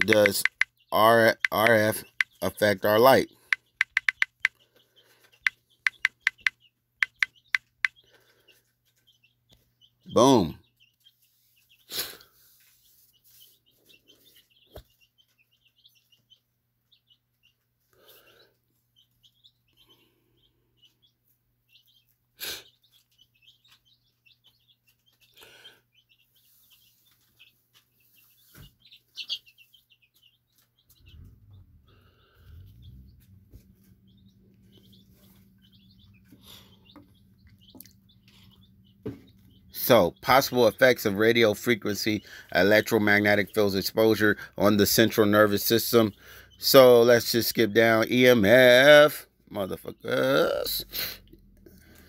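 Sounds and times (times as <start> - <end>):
sharp clicks: 0.0 - 2.5, 3.5 - 4.6, 5.4 - 8.0
small bird chirps: 0.0 - 50.9.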